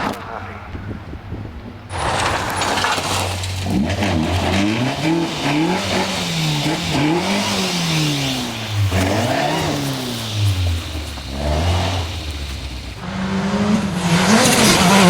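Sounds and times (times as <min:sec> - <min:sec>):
rally car engine revving: 0:01.9 - 0:15.0.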